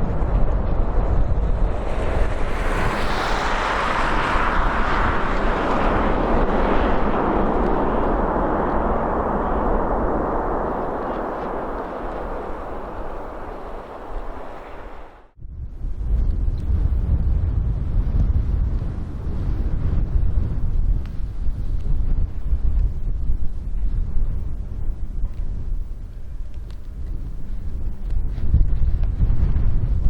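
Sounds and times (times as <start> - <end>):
jet engines rushing: 0.0 - 15.4
wind rumble on microphone: 0.0 - 30.0.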